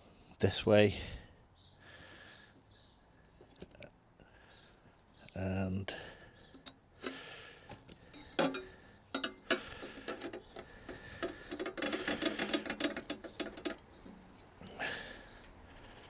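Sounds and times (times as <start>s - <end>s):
exhaust pipes clicking and rattling: 6.4s - 15.4s.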